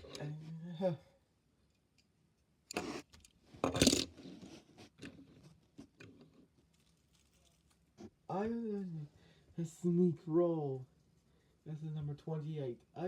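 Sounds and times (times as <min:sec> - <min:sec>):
toy cars clicking and clattering: 0:02.8 - 0:04.2.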